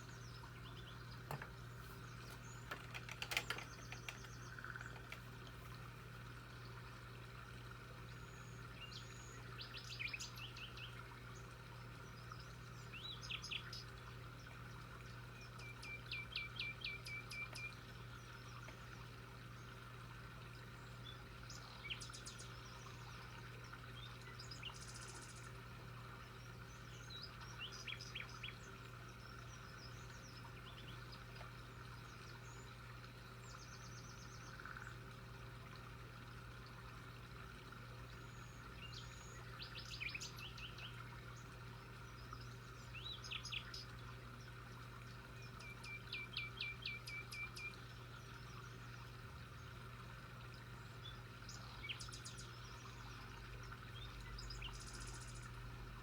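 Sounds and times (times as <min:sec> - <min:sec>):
small birds chirping: 0:00.0 - 0:05.9, 0:15.2 - 0:19.8, 0:26.2 - 0:35.1, 0:38.1 - 0:44.6, 0:50.6 - 0:55.7.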